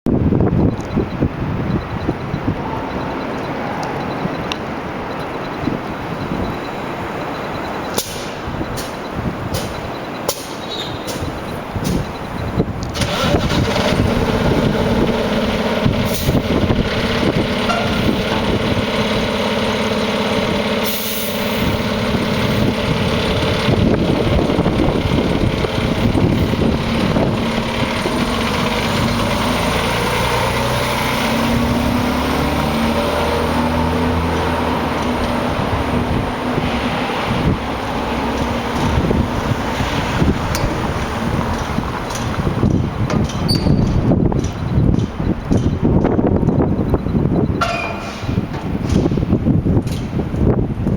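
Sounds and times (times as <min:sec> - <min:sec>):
truck diesel engine running: 0:00.1 - 0:50.9
air brakes hissing: 0:07.9 - 0:12.0, 0:20.8 - 0:21.8, 0:47.8 - 0:49.4.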